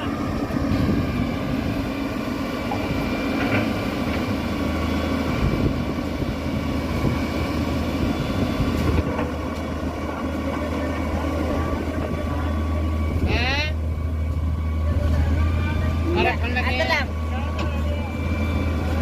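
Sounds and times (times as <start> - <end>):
heavy machinery engine running: 0.0 - 19.0.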